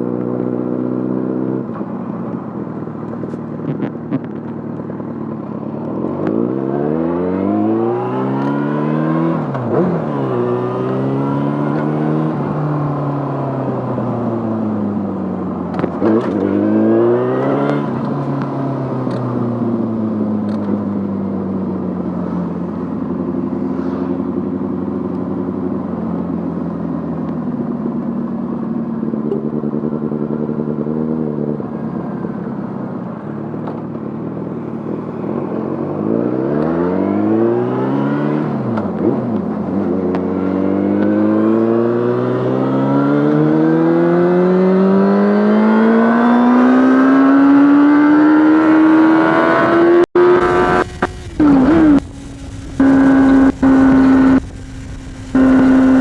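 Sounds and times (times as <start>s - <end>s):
motorcycle engine revving: 0.0s - 20.3s, 35.9s - 56.0s.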